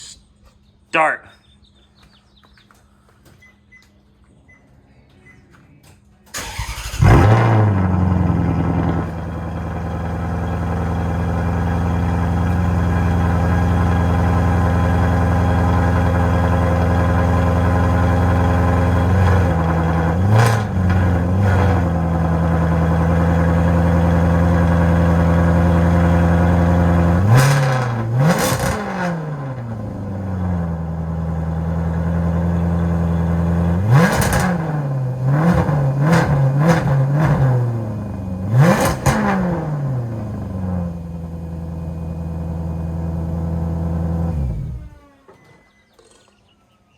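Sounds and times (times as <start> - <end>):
engine throttle blips: 6.4 - 41.4
car engine idling: 6.4 - 45.0.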